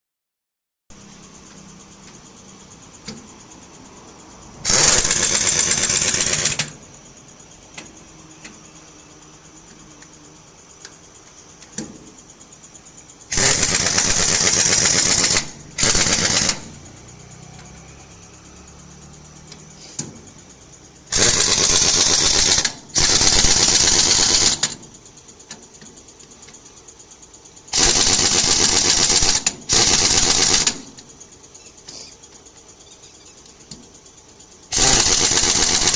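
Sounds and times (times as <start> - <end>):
power tool rattling in bursts: 4.6 - 6.8, 13.3 - 16.8, 21.1 - 24.8, 27.7 - 31.0, 34.7 - 35.9.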